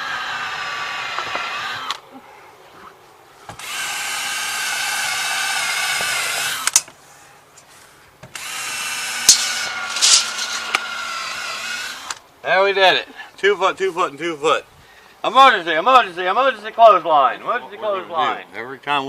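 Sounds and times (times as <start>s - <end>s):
power drill whining: 0.0s - 2.0s, 3.5s - 6.9s, 8.2s - 12.2s.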